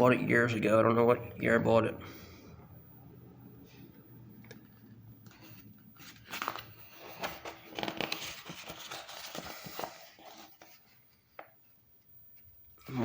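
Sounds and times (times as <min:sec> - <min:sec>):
book pages turning and rustling: 0:04.4 - 0:11.6.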